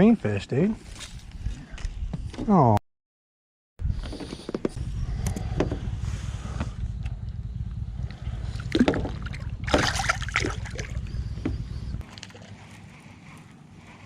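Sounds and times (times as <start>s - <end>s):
steady low rumble: 3.8s - 14.0s
water splashes: 8.6s - 11.0s.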